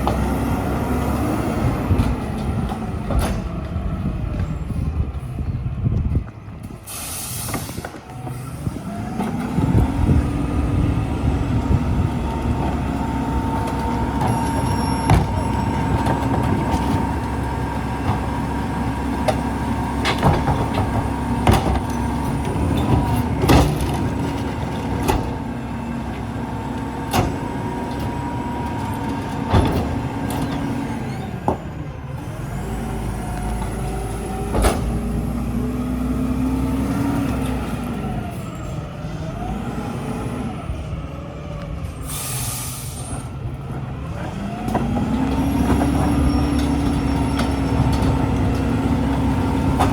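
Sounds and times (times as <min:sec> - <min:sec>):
garbage truck engine running: 0:00.0 - 0:49.9
air brake hiss: 0:06.8 - 0:08.0, 0:42.0 - 0:43.3.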